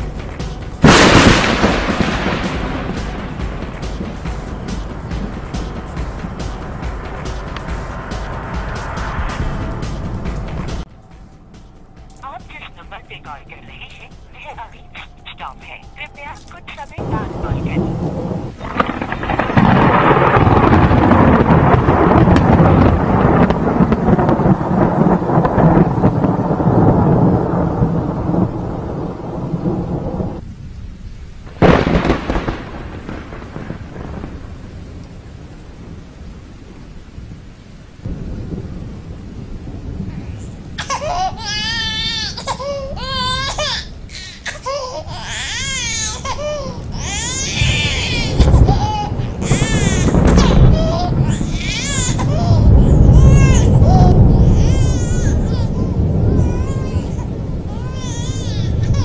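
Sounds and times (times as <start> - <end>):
sharp thunderclap: 0.0 - 11.2, 17.0 - 30.8, 31.4 - 37.4, 38.0 - 44.2, 45.1 - 59.0
rolling thunder: 0.0 - 15.0, 17.0 - 59.0
rain: 0.0 - 59.0
newborn baby crying: 40.7 - 59.0.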